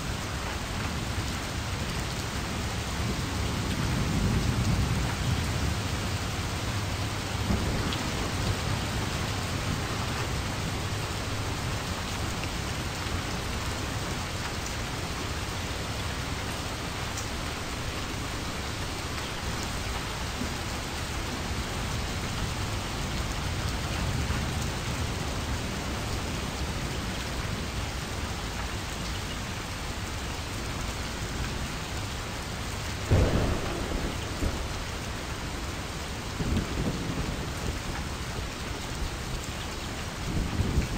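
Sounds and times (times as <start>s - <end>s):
steady noise like heavy rain: 0.0s - 40.9s.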